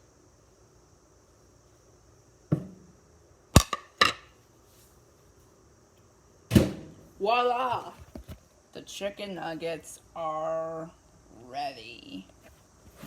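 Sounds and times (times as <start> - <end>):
dull thump: 2.5 - 2.8, 6.5 - 7.0
plate knocking on surface: 2.5 - 2.8.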